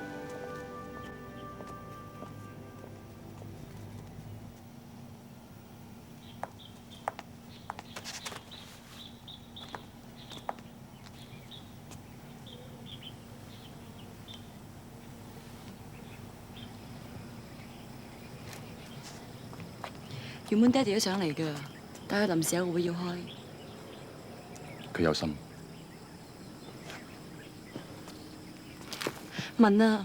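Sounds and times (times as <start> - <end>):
low steady hum: 0.0 - 6.7
small birds chirping: 6.1 - 30.0.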